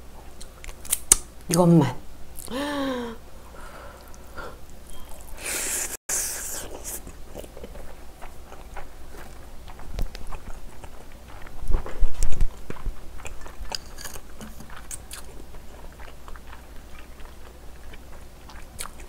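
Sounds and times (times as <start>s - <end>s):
chewing with wet mouth clicks: 6.6s - 19.0s.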